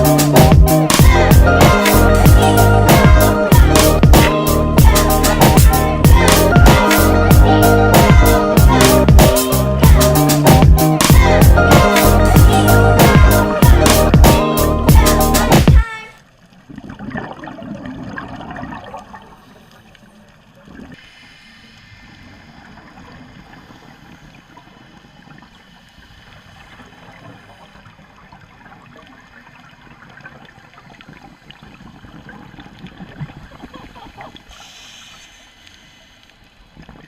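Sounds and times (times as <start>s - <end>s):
water gurgling: 0.0s - 37.0s
underwater water hiss: 20.9s - 28.2s, 33.5s - 37.0s
faint ticks: 34.5s - 37.0s.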